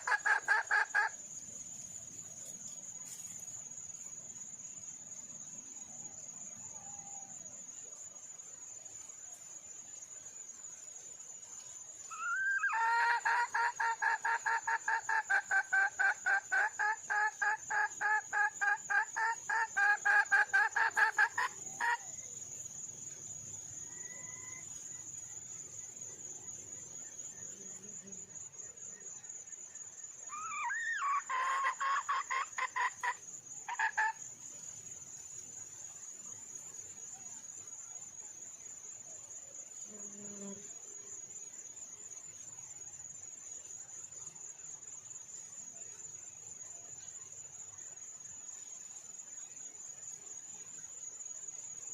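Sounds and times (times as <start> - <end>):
hen cackling: 0.0 - 1.2, 12.1 - 22.1, 30.3 - 34.2.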